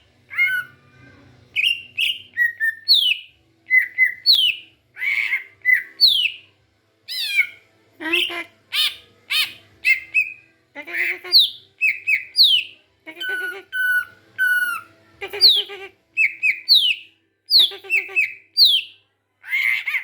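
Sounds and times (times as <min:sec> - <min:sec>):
young songbird calling: 0:11.0 - 0:18.9.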